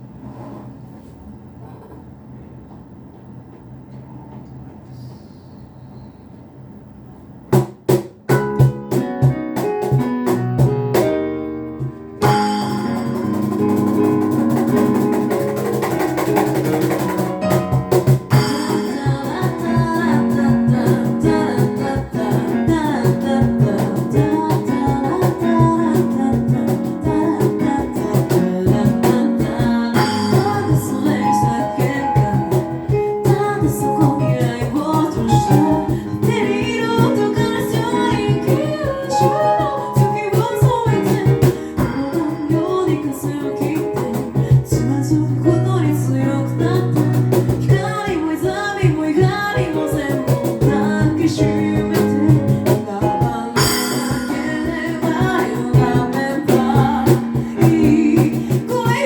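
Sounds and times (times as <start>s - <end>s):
vocal percussion beat: 12.2s - 59.0s
a cappella group singing harmony: 18.3s - 40.4s, 46.2s - 59.0s.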